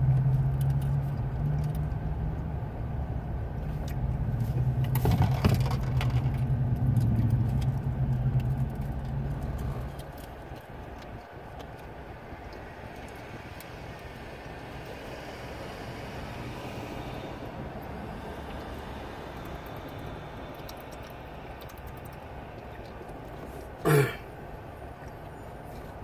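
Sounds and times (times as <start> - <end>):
engine humming low: 0.0 - 26.0
small clicks and crinkles: 0.1 - 2.4, 3.6 - 14.1.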